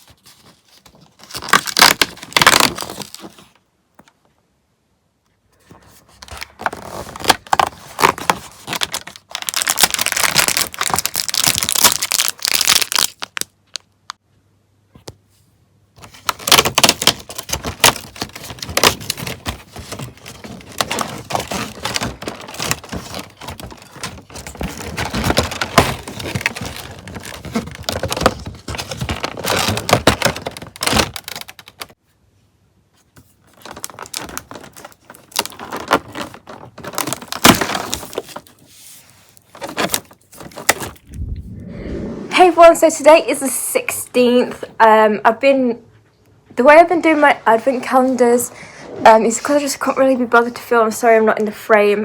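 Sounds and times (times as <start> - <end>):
packaging crinkling and tearing: 0.0 - 3.6, 6.2 - 14.2, 16.0 - 32.0, 33.4 - 41.0.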